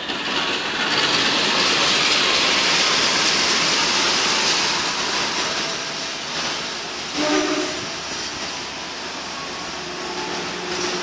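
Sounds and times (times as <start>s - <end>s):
train wheels rushing on rails: 0.0s - 11.0s.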